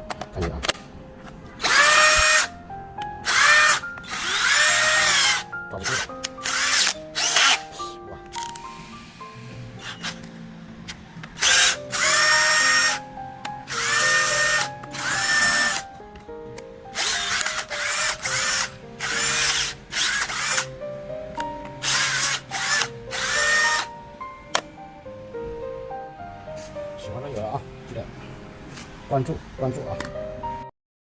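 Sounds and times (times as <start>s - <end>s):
background music: 0.0s - 30.7s
cordless drill whining: 1.6s - 2.5s, 3.2s - 7.9s, 8.5s - 10.2s, 11.4s - 13.0s, 13.7s - 15.9s, 17.0s - 20.7s, 21.8s - 23.9s.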